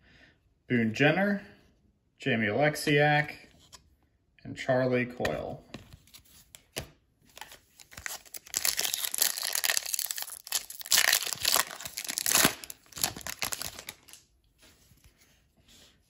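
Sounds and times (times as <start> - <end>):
wrapper crinkling and tearing: 7.3 - 14.3.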